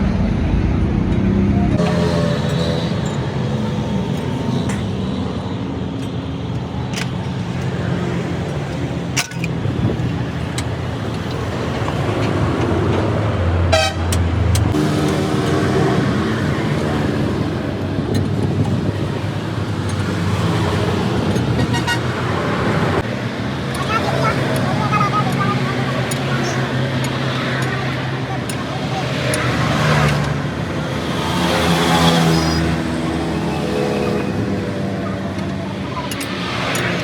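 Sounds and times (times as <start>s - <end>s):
vehicles passing: 0.0s - 37.0s
car horn honking: 13.7s - 14.2s, 21.5s - 22.7s.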